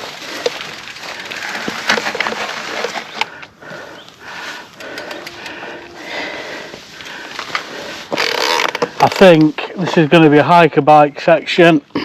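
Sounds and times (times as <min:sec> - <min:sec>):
bike tyres and frame clattering: 0:00.0 - 0:09.6.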